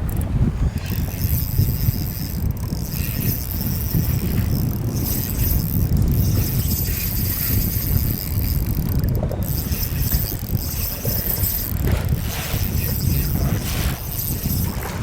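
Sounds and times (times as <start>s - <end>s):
choppy water around boat: 0.0s - 15.0s
wind rumbling on microphone: 0.0s - 15.0s.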